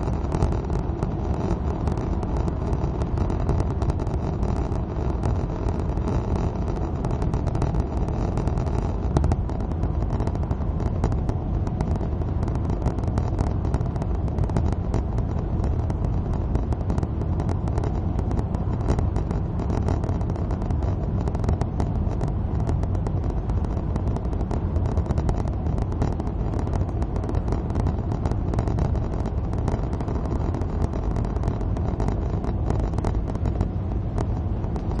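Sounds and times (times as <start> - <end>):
car engine and tyre noise on wet road: 0.0 - 35.0
raindrops ticking: 0.0 - 35.0.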